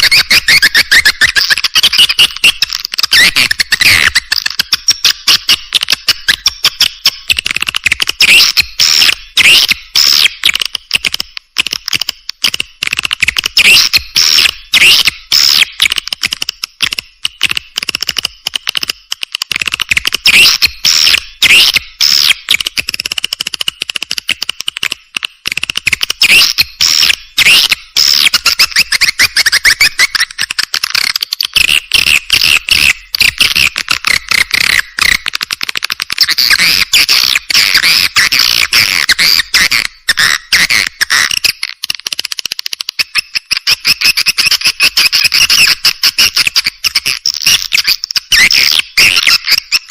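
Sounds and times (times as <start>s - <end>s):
buzzy bird chirps: 0.0s - 4.4s
rapid dry clicking: 22.1s - 27.0s, 27.7s - 49.9s.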